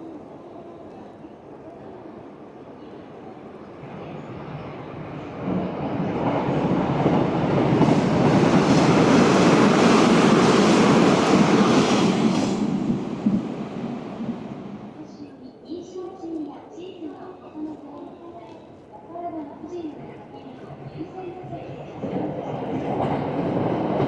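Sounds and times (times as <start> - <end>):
electric train running past: 1.6 - 15.2, 20.0 - 24.0.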